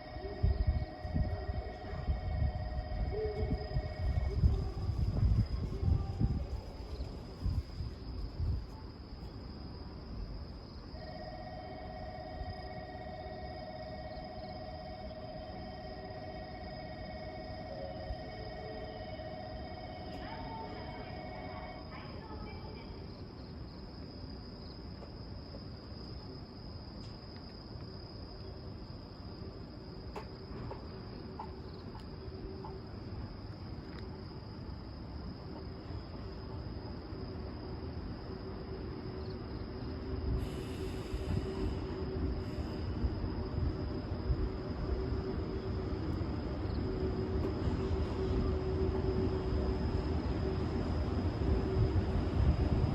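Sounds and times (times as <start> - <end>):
faint high-pitched tone: 0.0 - 7.2, 10.9 - 23.2
train rumbling and knocking: 0.0 - 8.9, 11.9 - 23.0, 30.0 - 34.8, 35.4 - 52.9
crickets chirring: 0.0 - 52.9.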